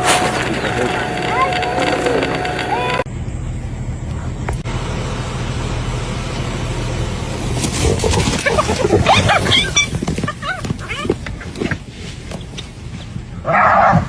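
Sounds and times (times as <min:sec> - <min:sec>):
vehicle engine idling hum: 0:00.0 - 0:03.0.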